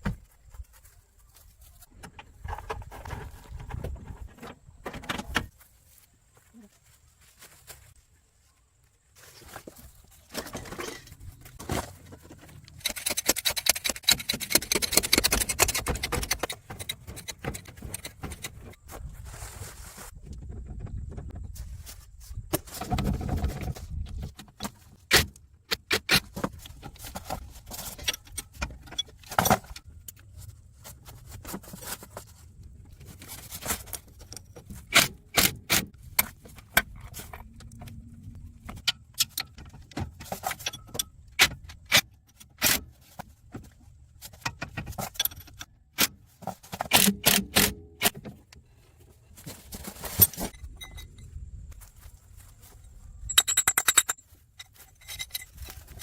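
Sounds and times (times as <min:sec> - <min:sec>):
metal tools clinking: 0:49.9 - 0:51.4, 0:53.2 - 0:56.0.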